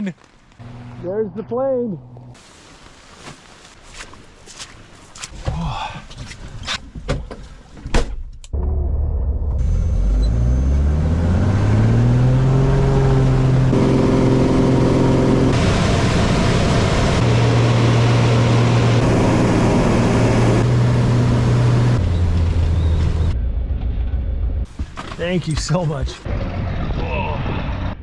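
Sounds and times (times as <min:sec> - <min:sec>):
small plane engine droning: 0:08.6 - 0:24.6.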